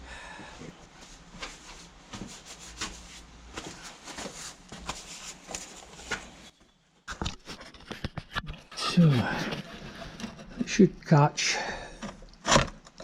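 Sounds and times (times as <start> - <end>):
hands rubbed with a rag: 1.0 - 6.3.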